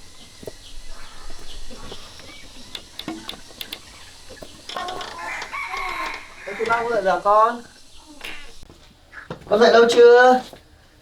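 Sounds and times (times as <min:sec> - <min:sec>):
light clicks and knocks: 0:01.8 - 0:07.3.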